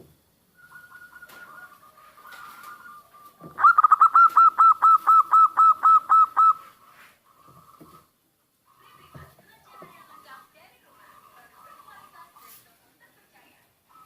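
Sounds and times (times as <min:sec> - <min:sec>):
dove calling: 0:00.6 - 0:08.1.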